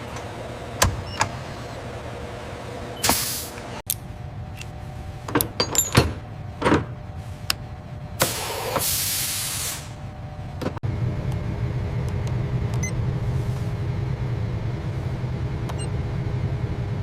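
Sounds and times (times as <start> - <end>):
low machine hum: 0.0 - 8.7, 9.8 - 17.0
hiss: 3.0 - 3.6, 8.2 - 10.0.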